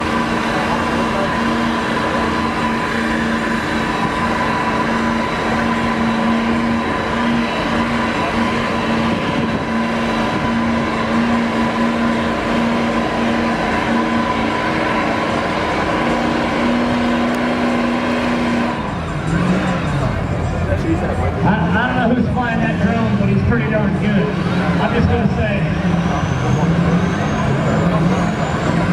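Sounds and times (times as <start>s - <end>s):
truck engine straining: 0.0s - 28.9s.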